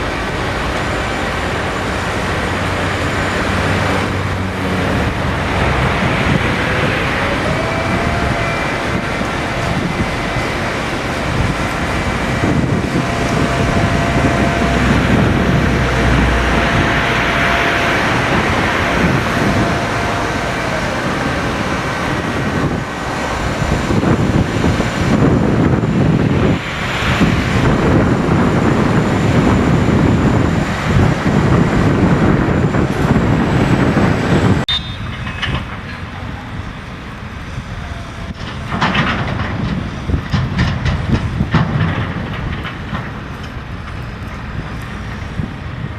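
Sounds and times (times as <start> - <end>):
diesel engine running: 0.0 - 45.9
metallic clanking and rattling: 34.7 - 44.5.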